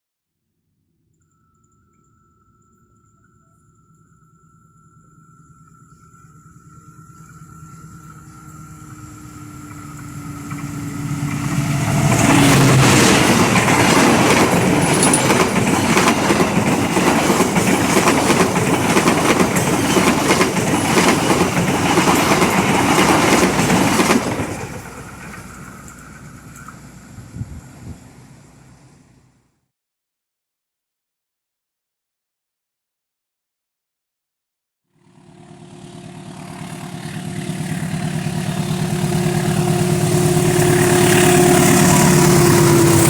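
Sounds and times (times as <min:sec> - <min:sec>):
train passing: 0:06.6 - 0:29.4, 0:35.0 - 0:43.0
wheels clicking over rail joints: 0:08.8 - 0:27.1.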